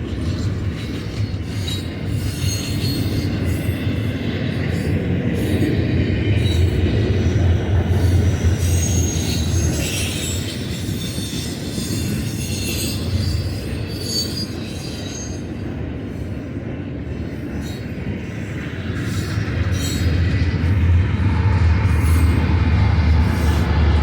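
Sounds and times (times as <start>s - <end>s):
train wheels rumbling on rails: 0.0s - 24.0s
high-pitched wheel squeals: 8.6s - 15.5s.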